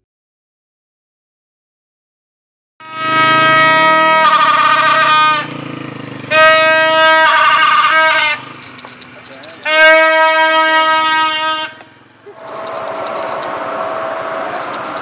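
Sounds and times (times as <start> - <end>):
warbling horn blasts: 2.8 - 8.8, 9.5 - 15.0.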